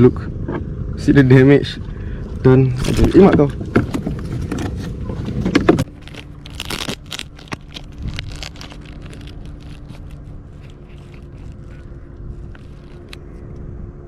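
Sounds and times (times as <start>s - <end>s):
faint steady hum: 0.0s - 14.0s
rustling and crinkling handling: 2.7s - 13.4s.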